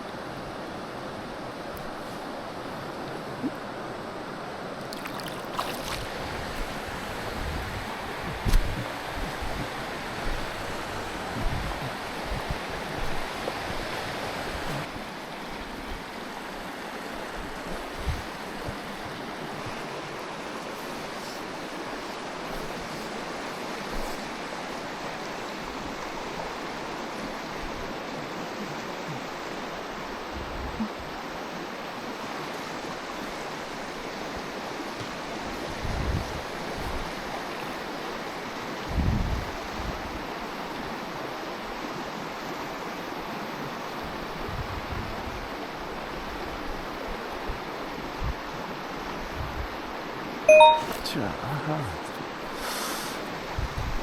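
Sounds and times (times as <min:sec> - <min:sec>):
water rushing over rocks: 0:00.1 - 0:39.0
wind thumps on microphone: 0:05.9 - 0:13.8, 0:38.9 - 0:40.1.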